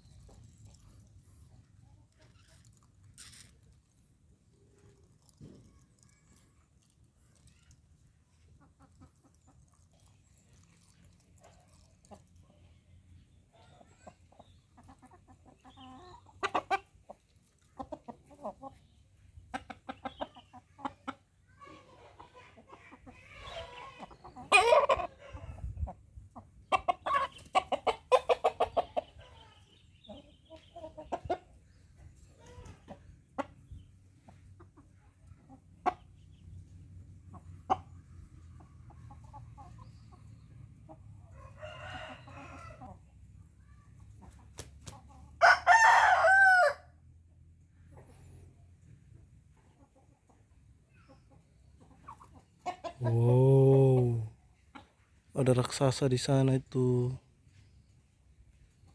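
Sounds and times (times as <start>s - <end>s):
chickens clucking: 0.0s - 46.6s, 47.6s - 56.2s, 56.8s - 58.9s
rooster crowing: 45.4s - 46.9s.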